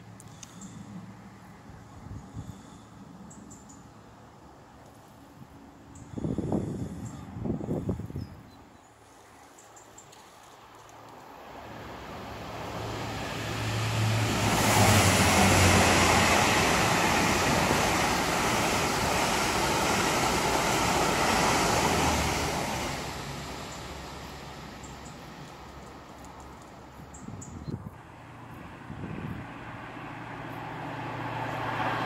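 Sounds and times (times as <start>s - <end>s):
rushing air: 6.0s - 8.4s, 11.1s - 28.0s
train passing at speed: 11.1s - 32.0s.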